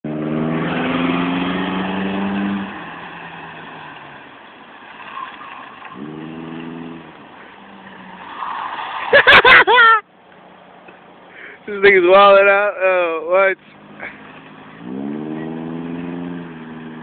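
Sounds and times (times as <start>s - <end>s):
car engine revving: 0.0s - 8.8s, 13.6s - 17.0s.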